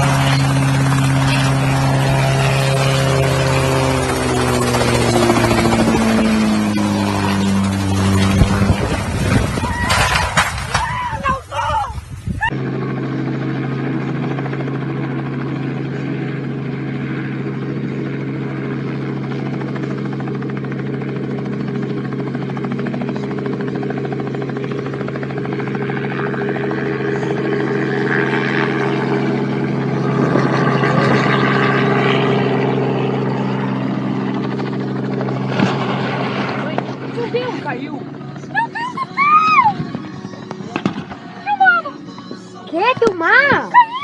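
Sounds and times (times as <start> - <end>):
helicopter droning: 0.0 - 44.0.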